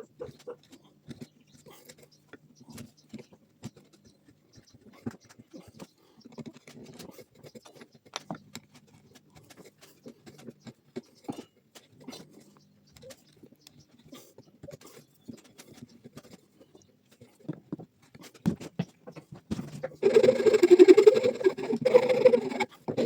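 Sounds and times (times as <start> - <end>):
metal parts scraping on wood: 19.7 - 23.0.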